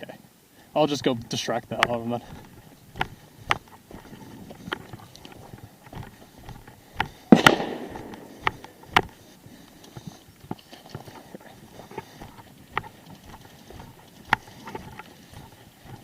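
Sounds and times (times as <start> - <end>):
sharp cracks and knocks: 1.1 - 9.2.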